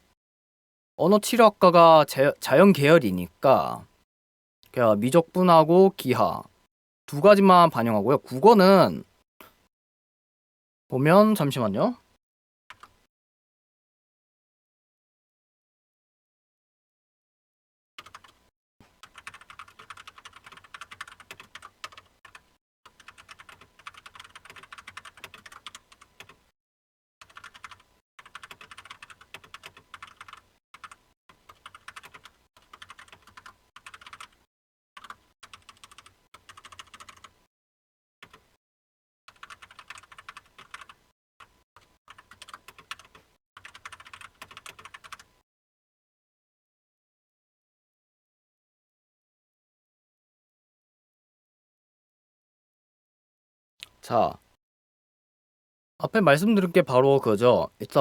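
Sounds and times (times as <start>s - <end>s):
computer keyboard typing: 18.0s - 18.4s, 19.0s - 26.4s, 27.2s - 37.3s, 38.2s - 38.5s, 39.3s - 45.3s.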